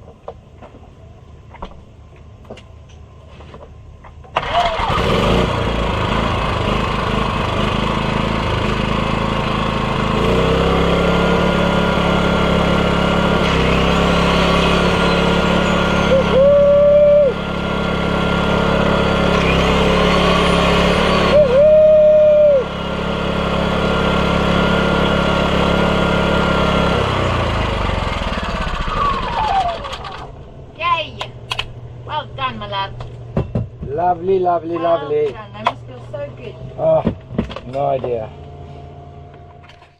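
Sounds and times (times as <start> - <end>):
small engine running: 4.4 - 30.6.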